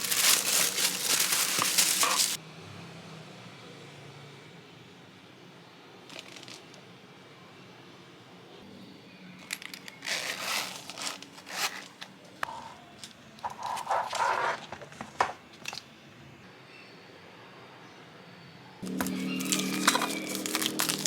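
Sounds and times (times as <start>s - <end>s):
crinkling and rustling: 0.0s - 2.4s, 6.1s - 6.8s, 9.4s - 15.8s, 18.8s - 21.0s.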